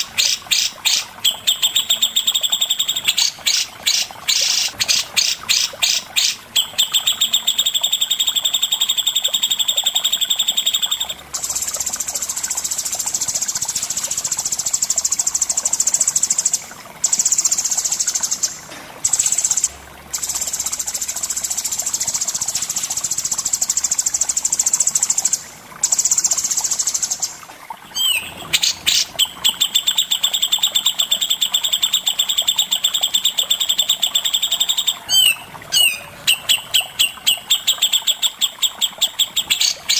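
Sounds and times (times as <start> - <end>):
songbird trills: 0.0 - 20.9, 24.6 - 39.9.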